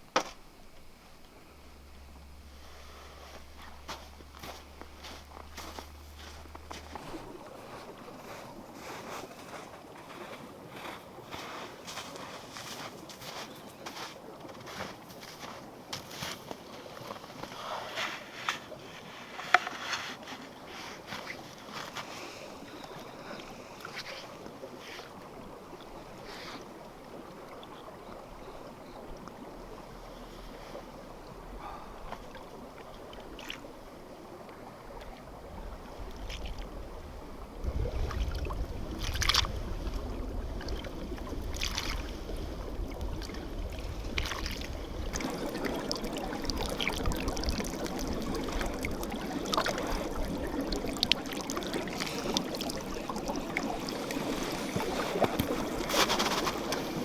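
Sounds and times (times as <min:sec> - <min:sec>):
wind buffeting microphone: 0:34.3 - 0:57.0.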